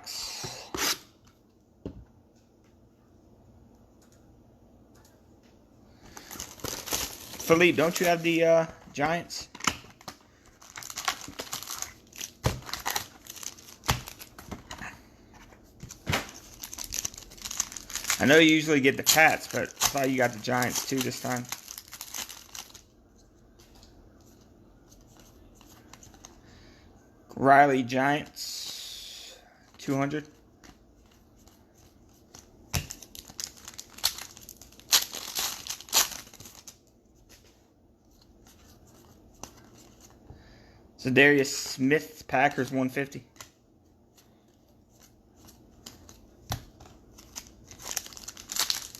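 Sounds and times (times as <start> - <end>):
wrappers crinkling and tearing: 6.1 - 8.4, 9.9 - 14.4, 16.3 - 22.9, 32.8 - 36.9, 47.1 - 48.9
cards rustling: 6.1 - 22.9, 23.5 - 26.4, 29.6 - 37.5, 38.1 - 40.2, 44.1 - 48.9.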